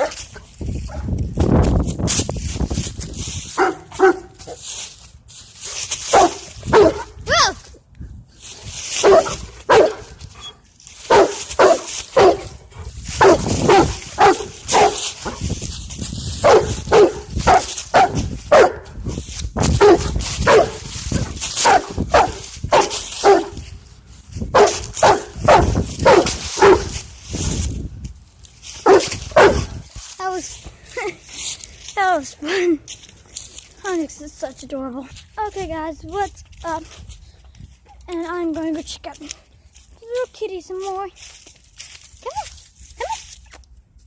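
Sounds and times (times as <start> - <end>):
dog barking: 0.0 - 0.2, 3.6 - 4.5, 6.1 - 7.2, 9.0 - 10.1, 11.1 - 12.6, 13.2 - 15.4, 16.4 - 18.9, 19.8 - 20.8, 21.6 - 23.6, 24.6 - 26.9, 28.8 - 29.7.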